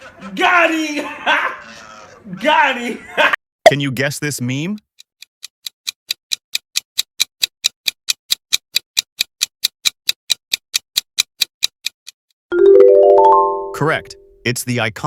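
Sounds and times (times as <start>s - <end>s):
clock ticking: 3.7s - 12.2s.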